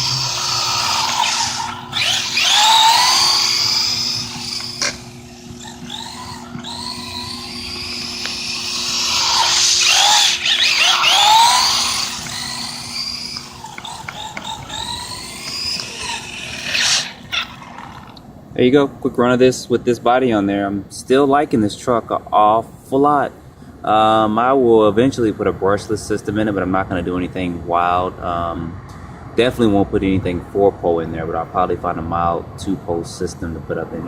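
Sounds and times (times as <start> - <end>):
rc truck electric motor whining: 0.0 - 18.2.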